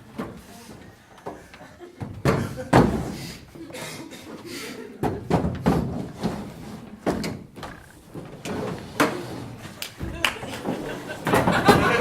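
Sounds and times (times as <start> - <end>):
chairs knocking and clattering: 1.3 - 3.2, 5.0 - 12.0.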